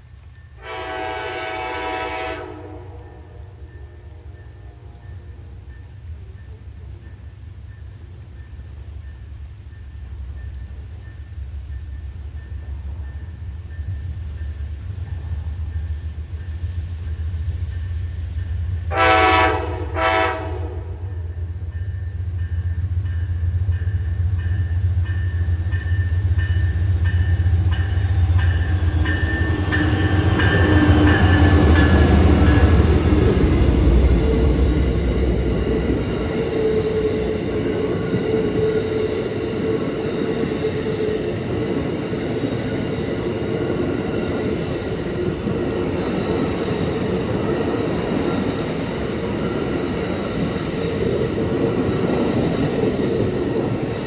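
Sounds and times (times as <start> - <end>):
diesel locomotive engine rumble: 0.0 - 54.0
rail cars rolling with wheel noise: 0.0 - 54.0
steady tone from train wheels: 0.0 - 54.0
train horn blasts: 0.6 - 5.7, 18.9 - 21.4.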